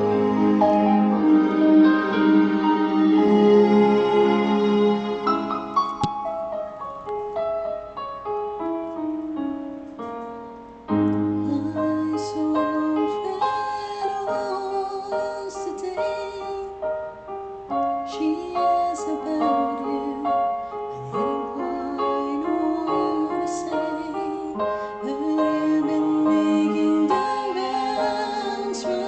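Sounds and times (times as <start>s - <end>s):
fuller accompaniment with deep notes: 0.0s - 7.7s
slow piano ballad: 0.0s - 29.0s.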